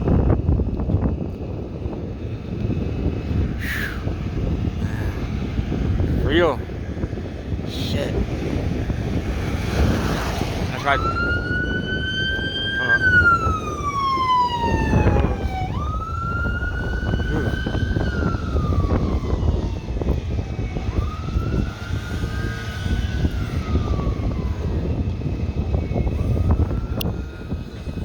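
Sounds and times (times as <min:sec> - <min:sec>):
siren wailing: 0:10.2 - 0:28.0.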